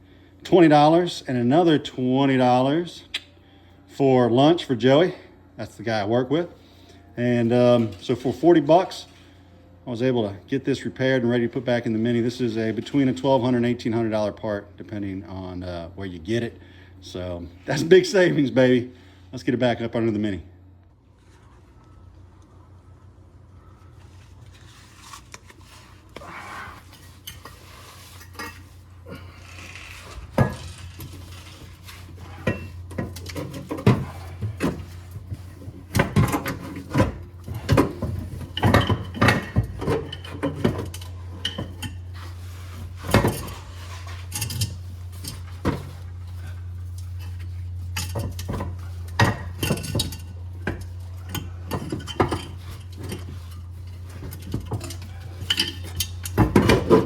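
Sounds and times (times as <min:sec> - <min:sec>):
metallic clanks on exhaust pipe: 0:30.1 - 0:57.0.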